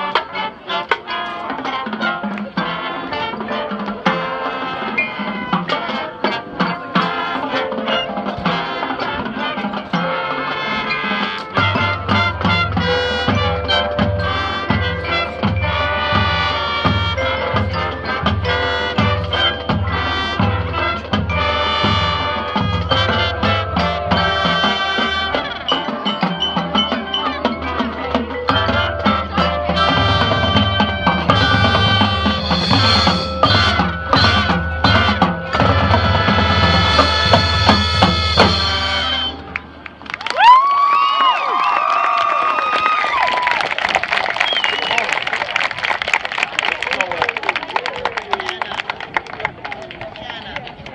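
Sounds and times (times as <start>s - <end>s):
brass melody: 0.0s - 40.2s
marching band playing: 0.0s - 50.9s
bass drum beat: 28.2s - 39.0s.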